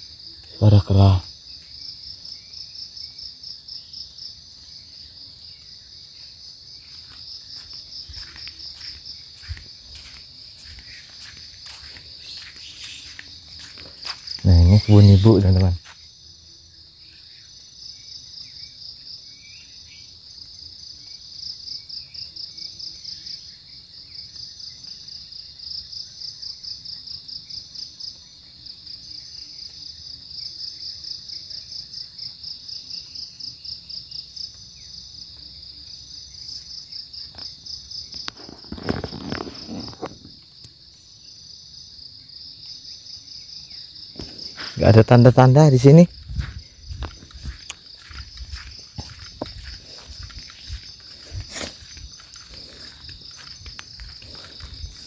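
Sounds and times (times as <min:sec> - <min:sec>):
insects shrilling: 0:06.0 - 0:16.1, 0:36.4 - 0:41.1, 0:43.1 - 0:55.0
rustling and crackling: 0:38.3 - 0:40.4.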